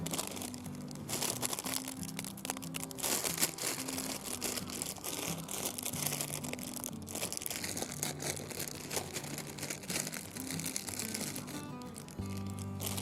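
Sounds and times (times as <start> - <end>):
crackling and crinkling: 0.0 - 13.0
soft background music: 0.0 - 13.0.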